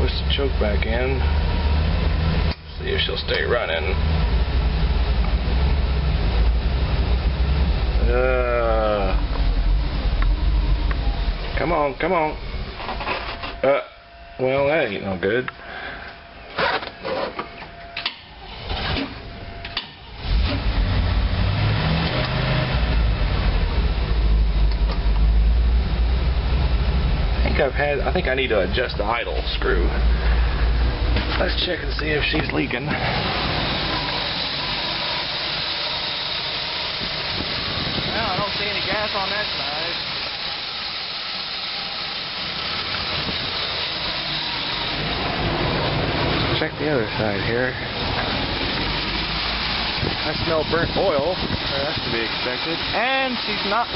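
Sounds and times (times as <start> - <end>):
steady tone: 0.0 - 18.5
bus engine starting and running: 0.0 - 53.9.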